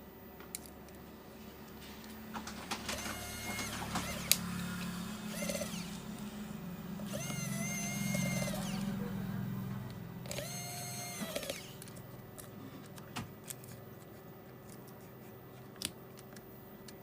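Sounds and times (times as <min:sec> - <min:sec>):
small electric motor whirring: 0:02.9 - 0:12.0.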